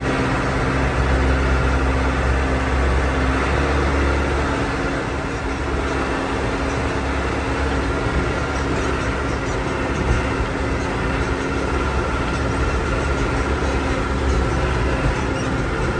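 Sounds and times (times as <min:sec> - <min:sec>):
vehicle engine deep rumble: 0:00.0 - 0:15.9.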